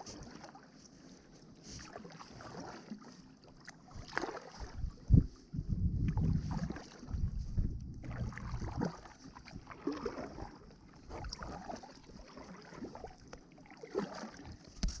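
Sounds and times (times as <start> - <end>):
paddle splashing in water: 0.0 - 15.0
wind rumble on microphone: 3.9 - 10.5.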